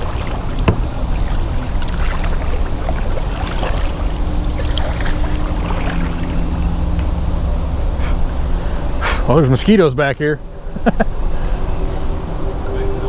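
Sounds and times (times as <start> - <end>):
faint hum: 0.0 - 13.0
steady low rumble: 0.0 - 13.0
water sounds: 0.0 - 13.0
light knocks on boat: 0.5 - 2.3.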